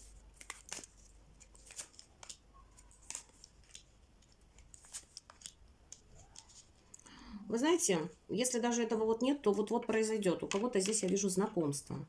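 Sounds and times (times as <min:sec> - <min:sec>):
cards snapping and slapping: 0:00.3 - 0:06.7.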